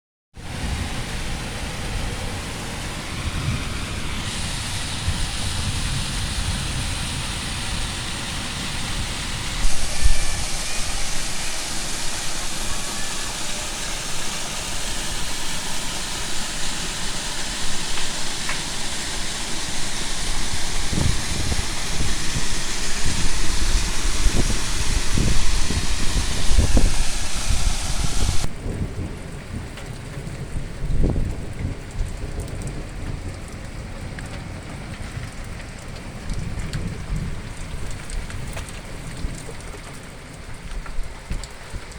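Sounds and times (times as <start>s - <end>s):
heavy rain hissing: 0.4s - 28.8s
wind buffeting microphone: 0.4s - 41.9s.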